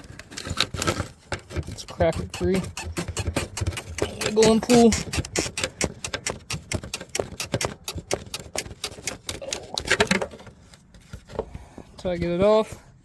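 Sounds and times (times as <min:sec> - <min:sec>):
plastic fitting clicking and rattling: 0:00.4 - 0:10.5.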